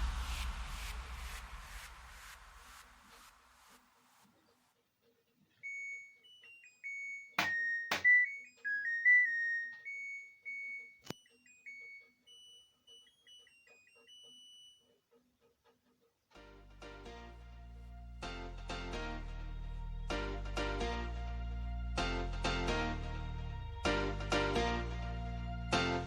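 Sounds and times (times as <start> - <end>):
washing machine beeper melody: 5.6 - 14.9
sharp clicks: 7.4 - 9.9.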